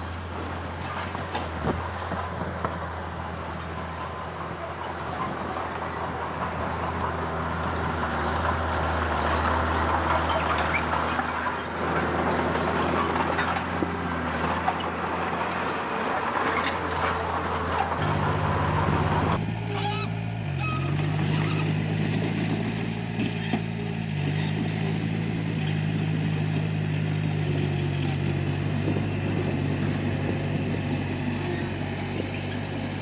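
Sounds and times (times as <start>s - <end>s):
bulldozer diesel engine droning: 0.0s - 33.0s
tracks clattering and scraping rubble: 0.0s - 33.0s.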